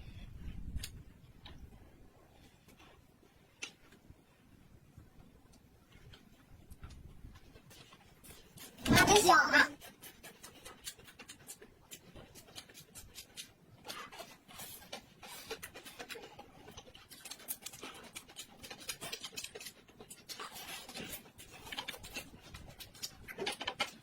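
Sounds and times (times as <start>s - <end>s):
chewing and lip-smacking: 9.6s - 24.0s.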